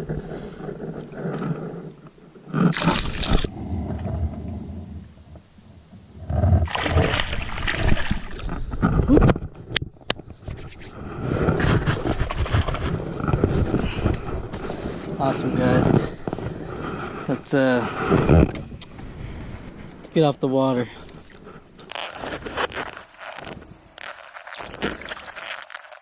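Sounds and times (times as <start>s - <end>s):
water splashing against kayak: 2.6s - 3.5s, 6.6s - 9.2s, 21.1s - 26.0s.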